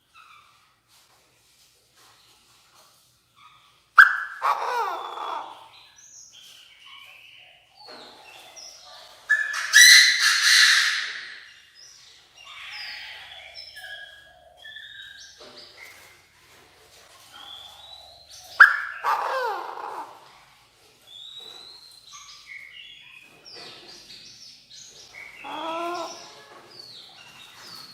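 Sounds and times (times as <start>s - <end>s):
francolin calling: 25.4s - 26.3s.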